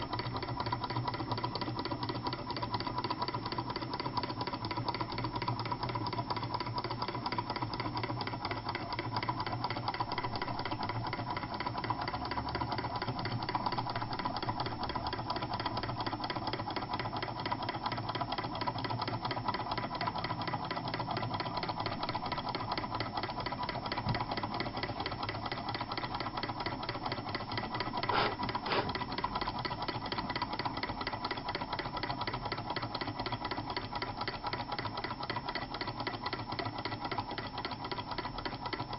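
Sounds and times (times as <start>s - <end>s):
model engines clattering: 28.0s - 29.0s.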